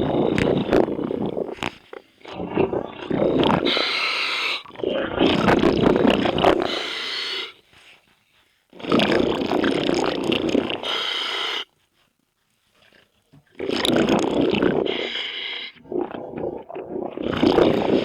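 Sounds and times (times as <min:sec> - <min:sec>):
scuba regulator exhaled bubbles: 0:00.0 - 0:07.0, 0:08.8 - 0:11.1, 0:13.5 - 0:18.0.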